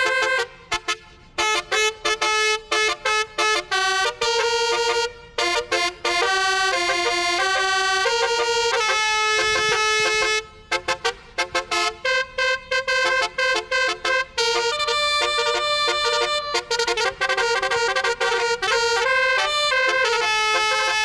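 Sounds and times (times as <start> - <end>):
horn playing a tune: 0.0 - 21.0.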